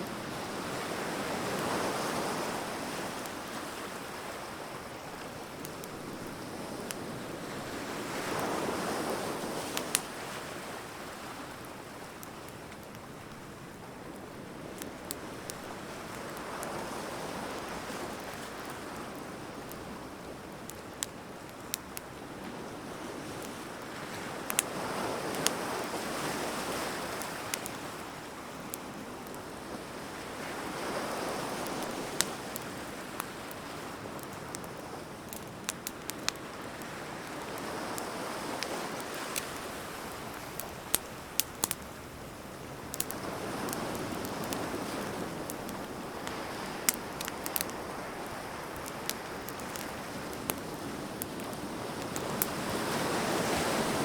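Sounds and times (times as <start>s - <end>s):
wood fire crackling: 0.0s - 54.0s
surf washing in and out: 36.3s - 54.0s.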